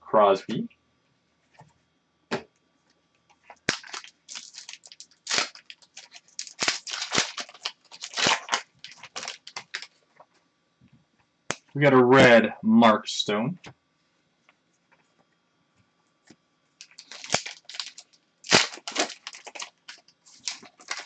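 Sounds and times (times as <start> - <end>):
cards and foil wrapper handled: 3.5 - 10.0, 16.8 - 21.0.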